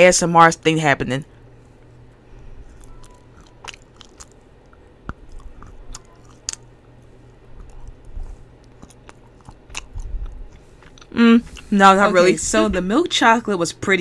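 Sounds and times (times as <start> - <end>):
chewing and mouth sounds: 1.9 - 11.8.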